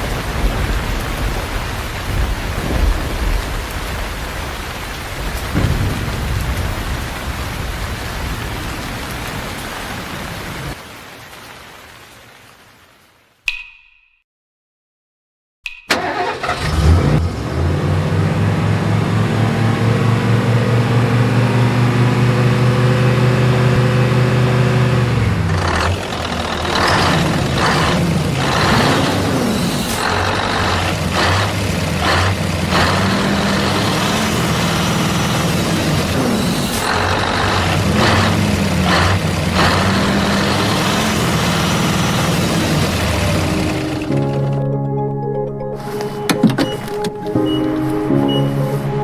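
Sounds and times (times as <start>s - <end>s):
tractor engine chugging and revving: 15.9s - 45.0s.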